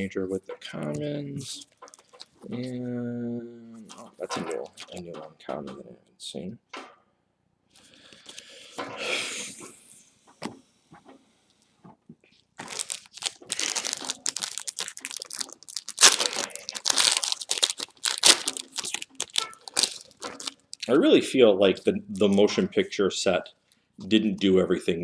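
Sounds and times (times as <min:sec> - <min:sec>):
wrapper crinkling: 0:01.7 - 0:02.4, 0:12.6 - 0:21.0
wrapper tearing: 0:01.8 - 0:02.4, 0:12.6 - 0:20.9.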